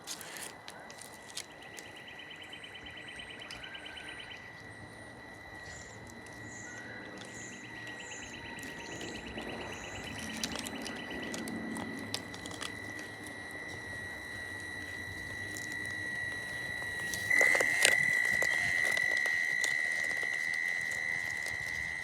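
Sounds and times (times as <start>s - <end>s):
high-pitched electric motor whine: 0.0s - 22.0s
small clicks and knocks: 6.0s - 22.0s.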